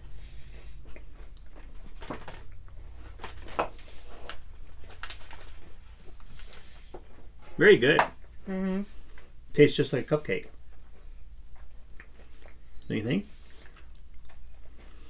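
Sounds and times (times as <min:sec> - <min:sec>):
person chewing crunchy cookie: 0:00.0 - 0:07.4, 0:10.5 - 0:15.0
low room hum: 0:00.0 - 0:15.0.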